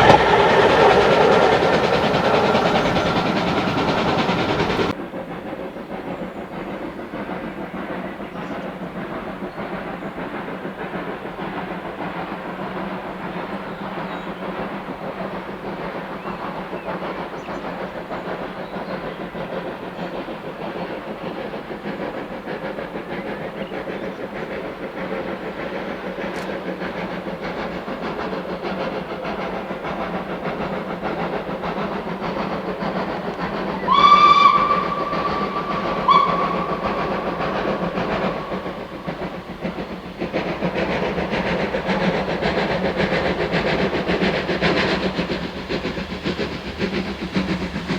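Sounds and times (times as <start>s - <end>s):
steam whistle blasts: 0.0s - 4.9s, 33.4s - 39.5s
steam train rumbling: 0.0s - 47.9s.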